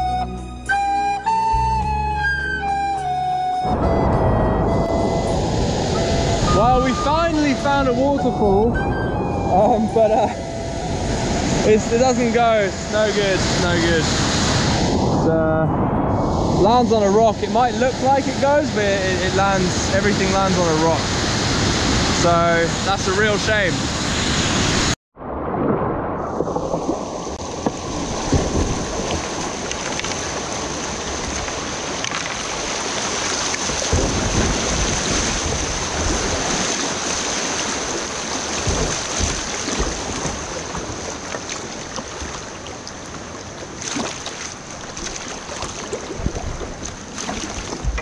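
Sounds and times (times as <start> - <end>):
wind rumble on microphone: 3.6 - 48.0
creek whitewater rushing: 5.6 - 8.6, 9.6 - 14.9, 16.6 - 24.9, 27.4 - 48.0.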